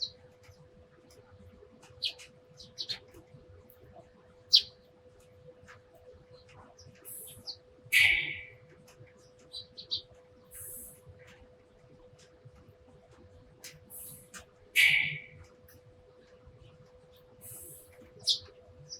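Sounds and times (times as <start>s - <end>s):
faint steady hum: 0.0s - 18.9s
sparrows chirping: 1.9s - 3.2s, 4.5s - 4.8s, 6.4s - 8.6s, 9.3s - 11.0s, 13.9s - 15.5s, 17.4s - 18.9s.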